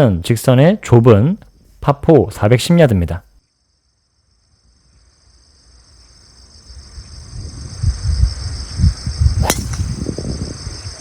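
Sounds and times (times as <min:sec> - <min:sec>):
insects buzzing: 0:00.2 - 0:11.0
wind on microphone: 0:06.8 - 0:11.0
golf club striking ball: 0:09.4 - 0:10.0.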